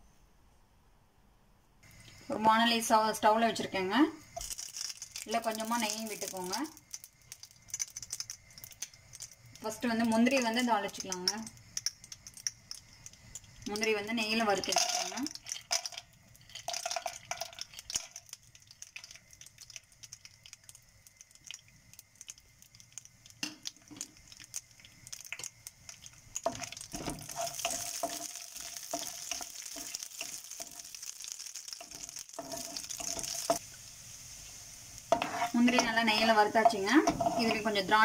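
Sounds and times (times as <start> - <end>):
nuts sizzling in a pan: 1.8 - 38.0
wooden spatula stirring and tapping: 14.4 - 31.0, 31.8 - 33.7, 35.1 - 37.8.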